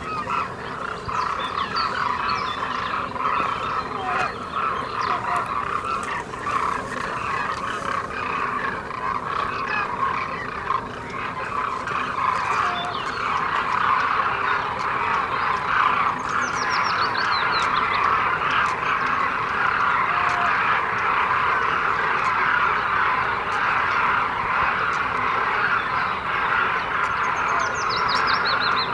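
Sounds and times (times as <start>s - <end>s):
flock of cranes calling: 0.0s - 28.9s.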